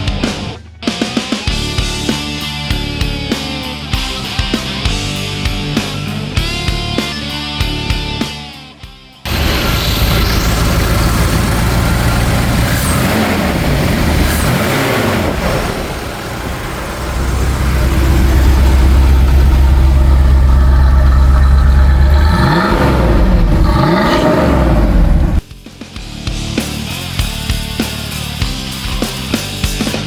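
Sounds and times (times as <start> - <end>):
car engine blipping: 9.3 - 25.4.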